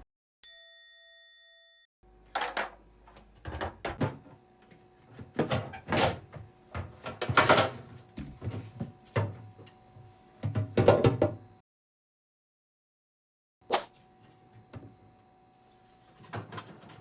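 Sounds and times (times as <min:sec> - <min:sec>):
food containers knocking and rattling: 0:02.4 - 0:04.3.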